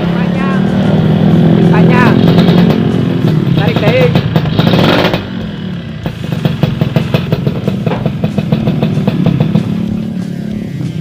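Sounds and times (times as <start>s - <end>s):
two-stroke engine idling: 0.0s - 11.0s.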